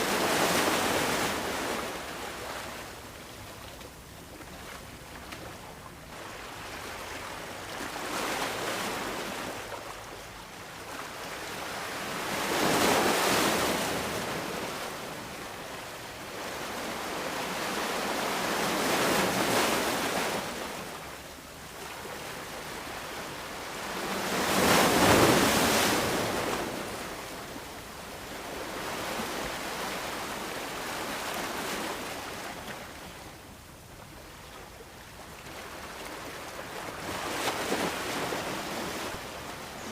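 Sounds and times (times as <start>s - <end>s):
sea waves washing onto beach: 0.0s - 3.0s.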